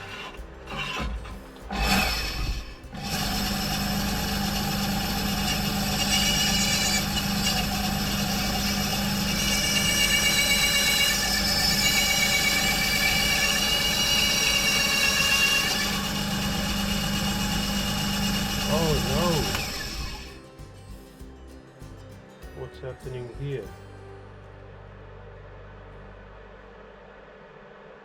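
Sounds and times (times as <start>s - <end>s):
bandsaw motor running: 0.0s - 20.4s.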